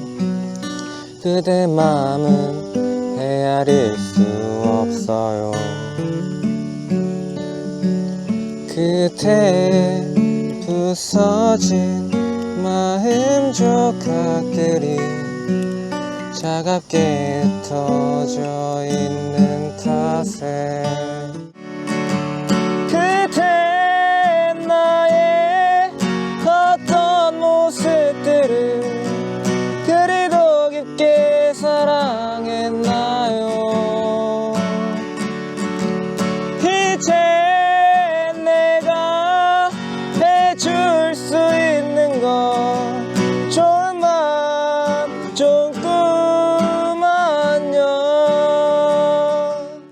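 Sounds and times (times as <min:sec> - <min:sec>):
person singing slow melody: 0:00.0 - 0:21.6, 0:22.8 - 0:35.7, 0:36.6 - 0:49.9
acoustic guitar strumming: 0:00.0 - 0:49.9.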